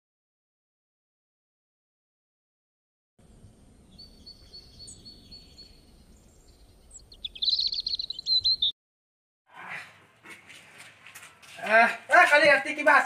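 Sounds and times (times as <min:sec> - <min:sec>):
birds chirping: 0:03.2 - 0:08.8.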